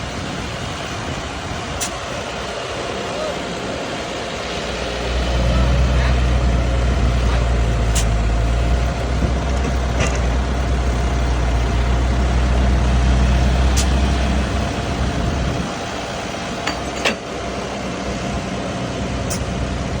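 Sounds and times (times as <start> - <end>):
motor rumbling with whine: 0.0 - 20.0.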